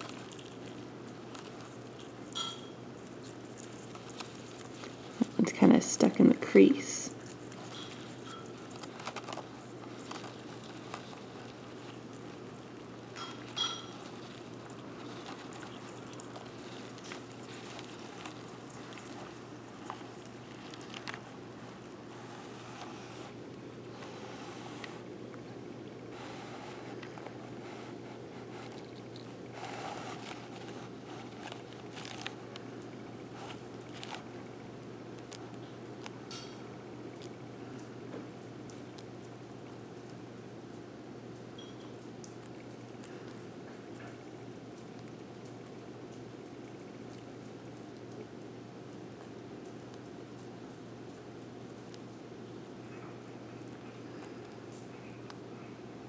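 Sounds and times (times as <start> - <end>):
lizard crunching insects: 0.0 - 56.0
faint scratches and clicks: 7.1 - 23.4, 26.2 - 32.7.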